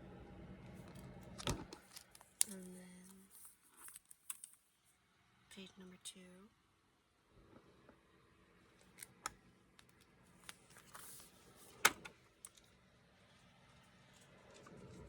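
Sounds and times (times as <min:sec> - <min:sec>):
plastic binder pages turning: 0:00.8 - 0:04.6, 0:08.8 - 0:12.7.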